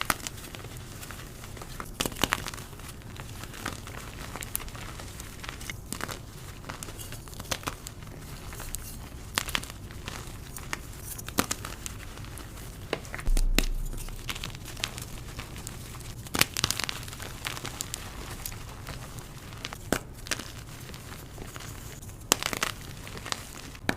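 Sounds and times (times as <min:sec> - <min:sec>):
dull low thump: 0:13.3 - 0:15.5.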